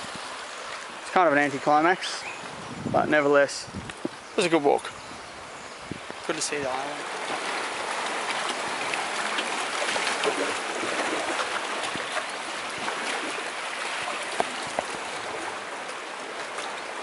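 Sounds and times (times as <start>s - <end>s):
sea water washing onto shore: 6.1s - 17.0s.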